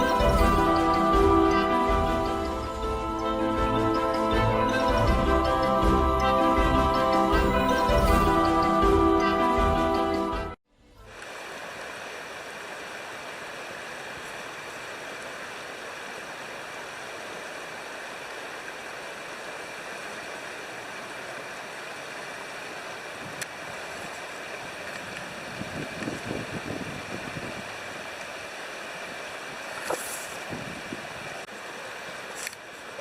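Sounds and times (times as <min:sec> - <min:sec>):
river water rushing: 0:00.0 - 0:10.2, 0:11.0 - 0:33.0
wind buffeting microphone: 0:25.0 - 0:28.0, 0:30.3 - 0:31.4.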